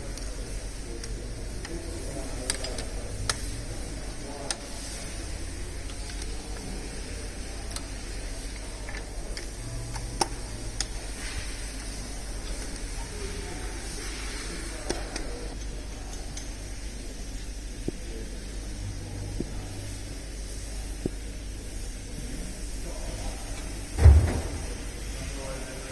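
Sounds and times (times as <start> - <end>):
steady low hum: 23.9 - 25.8.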